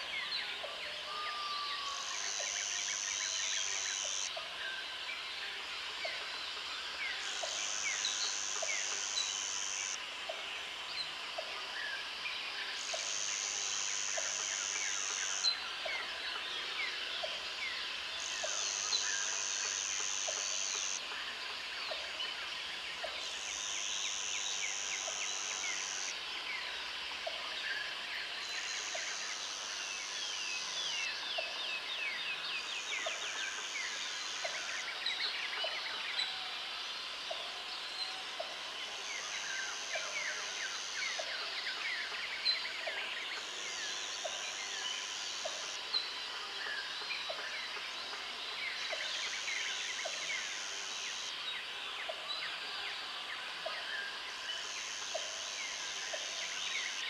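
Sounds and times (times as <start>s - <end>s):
high insect buzz: 1.7s - 4.3s, 7.3s - 10.0s, 12.8s - 15.6s, 17.6s - 21.0s, 23.2s - 26.2s.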